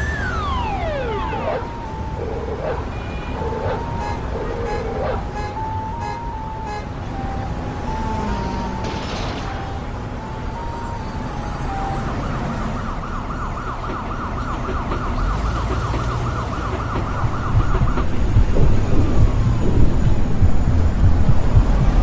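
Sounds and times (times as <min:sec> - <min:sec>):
emergency vehicle siren: 0:00.0 - 0:22.0
heavy thumps: 0:16.0 - 0:22.0
low rumble: 0:17.1 - 0:22.0.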